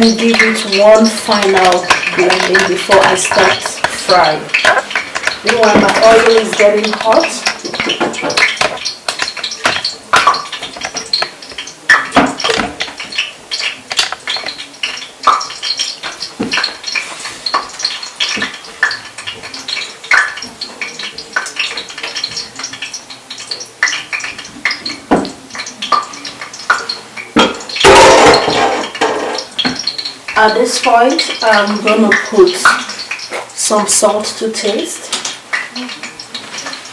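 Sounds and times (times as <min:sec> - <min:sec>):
batter pouring: 0:01.2 - 0:30.4.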